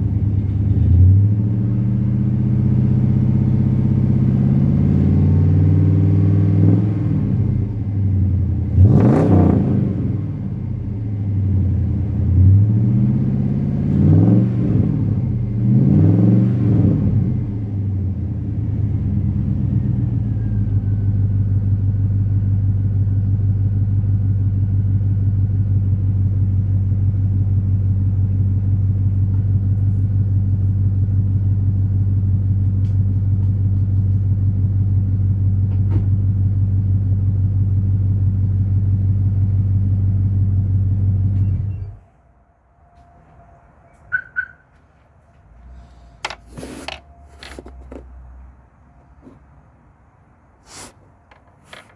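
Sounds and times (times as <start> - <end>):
engine idling with deep rumble: 0.0 - 14.0, 16.9 - 44.2
faint clicks and knocks: 50.7 - 51.9.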